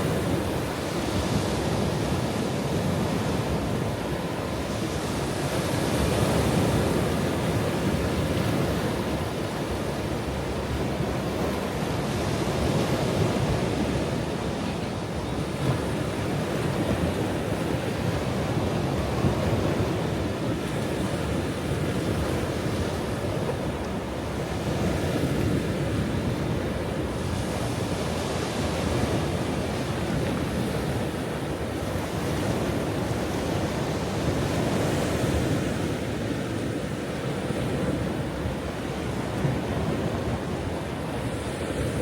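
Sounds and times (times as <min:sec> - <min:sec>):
ocean waves breaking: 0:00.0 - 0:42.0.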